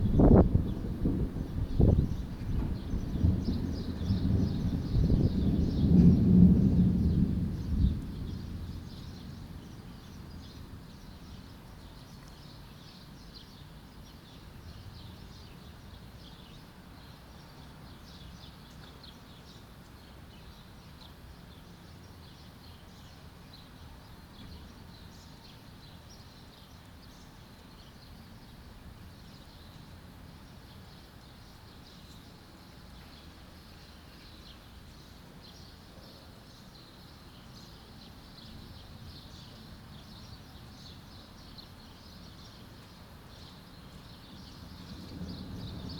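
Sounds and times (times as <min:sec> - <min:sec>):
thunderclap: 0:00.0 - 0:08.9
small birds chirping: 0:07.6 - 0:45.9.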